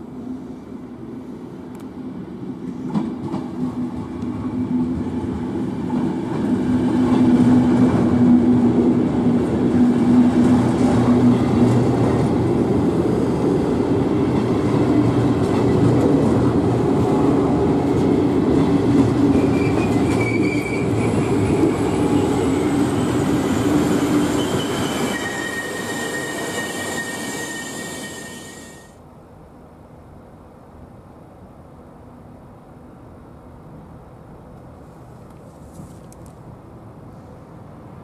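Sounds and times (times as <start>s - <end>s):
train wheels rumbling on rail: 1.6s - 28.9s
high wheel squeals: 19.4s - 28.9s.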